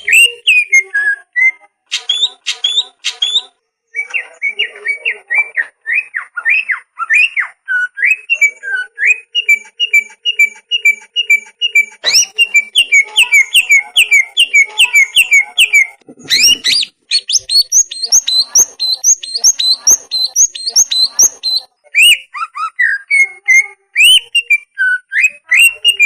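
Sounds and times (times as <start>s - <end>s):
bird whistling song: 0.0s - 26.0s.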